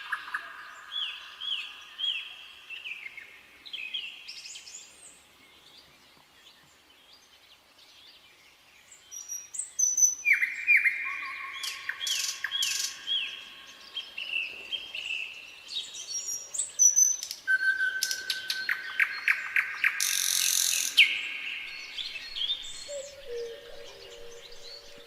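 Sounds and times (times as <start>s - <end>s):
nightingale singing: 9.0s - 25.0s.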